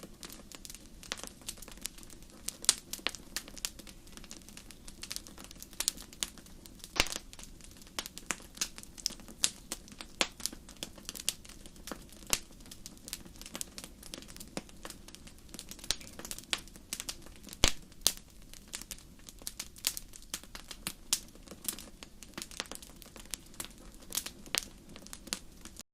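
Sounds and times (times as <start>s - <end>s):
wood fire crackling: 0.0s - 25.8s.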